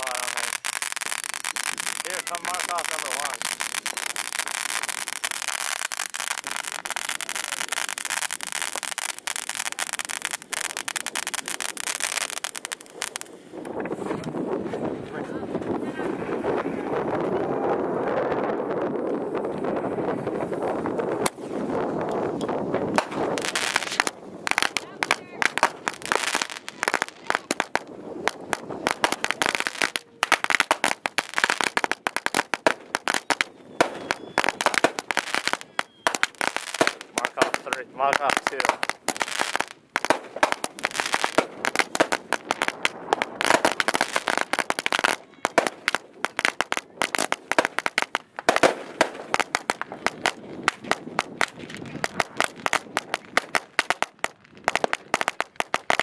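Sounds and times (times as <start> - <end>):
firecrackers crackling: 0.0 - 56.0.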